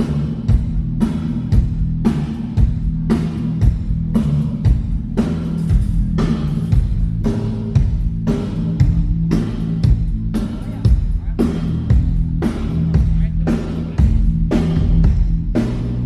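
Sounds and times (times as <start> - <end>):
drums playing a steady beat: 0.0 - 16.0
sustained low bass notes: 0.0 - 16.0.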